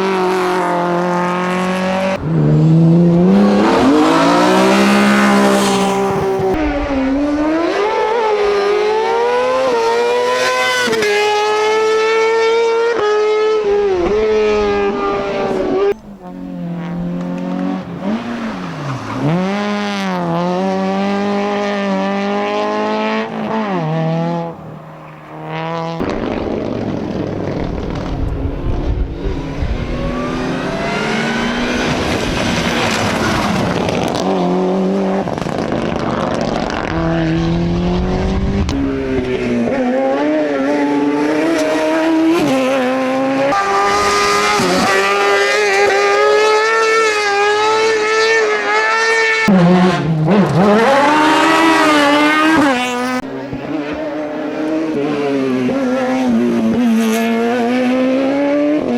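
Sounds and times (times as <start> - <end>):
race car engines revving: 0.0 - 58.9
tyre noise: 2.0 - 6.8.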